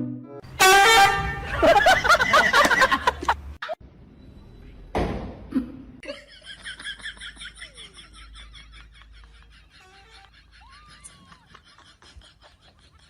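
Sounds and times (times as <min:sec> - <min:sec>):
person laughing: 0:05.5 - 0:13.0.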